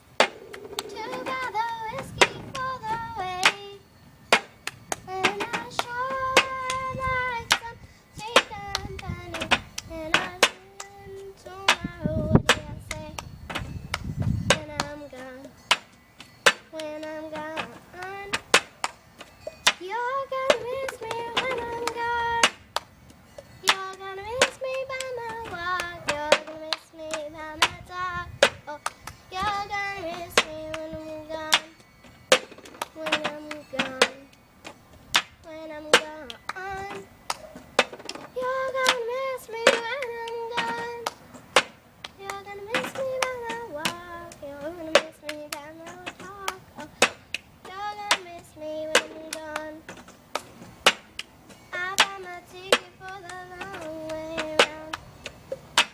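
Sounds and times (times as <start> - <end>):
high voice singing: 0.0 - 15.9, 35.2 - 50.0
sharp hand claps: 17.6 - 19.8, 20.5 - 23.8, 36.0 - 39.1, 39.7 - 48.4, 49.0 - 55.9.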